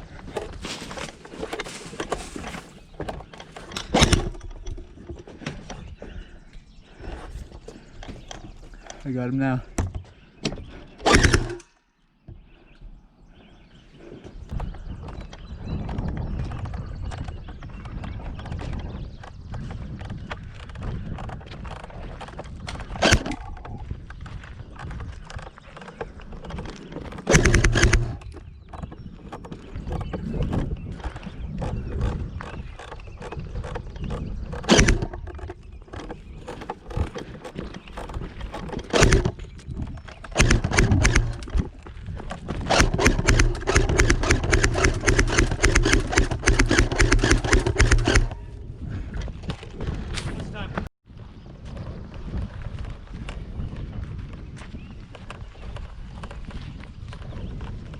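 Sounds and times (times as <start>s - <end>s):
rustling through brush: 0.0s - 4.4s
sharp loud knocks: 40.4s - 41.5s.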